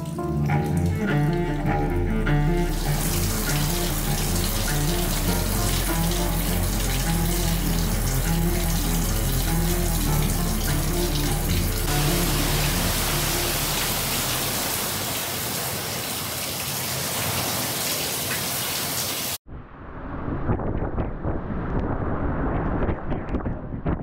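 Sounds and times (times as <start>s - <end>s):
soft background music: 0.0s - 14.7s
heavy rain pouring on water: 0.0s - 19.4s
wind gusting on microphone: 19.5s - 24.0s.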